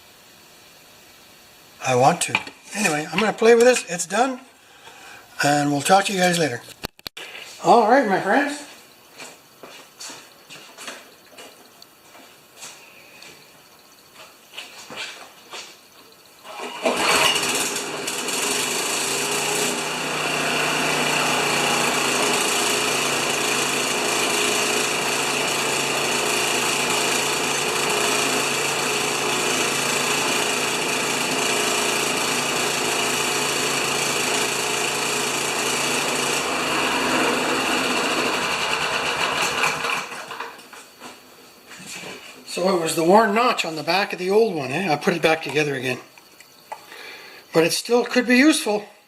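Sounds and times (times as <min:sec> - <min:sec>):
lawn mower engine running: 0:16.4 - 0:40.5.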